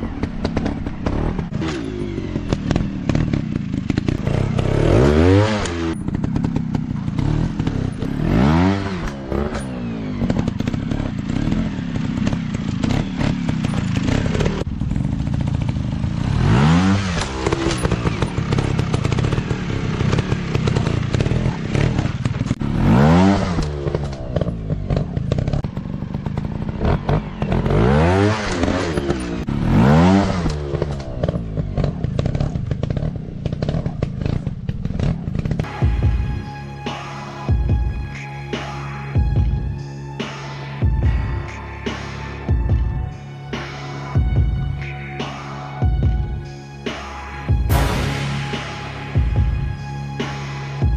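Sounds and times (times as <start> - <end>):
dirt bike engine revving: 0.0 - 37.6.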